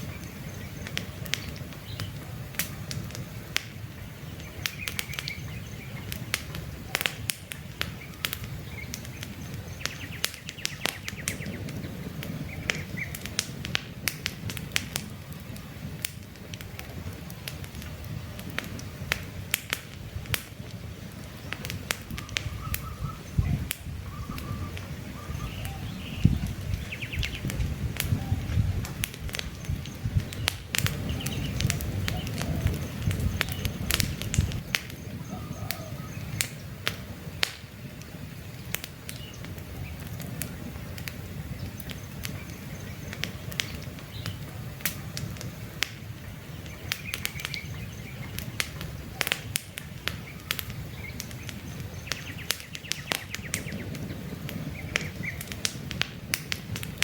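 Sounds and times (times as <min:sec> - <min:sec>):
campfire crackling and popping: 0:00.0 - 0:57.0
bird chirps: 0:04.0 - 0:06.1, 0:07.9 - 0:13.2, 0:22.2 - 0:28.7, 0:29.4 - 0:36.7, 0:46.4 - 0:49.2, 0:50.2 - 0:55.4.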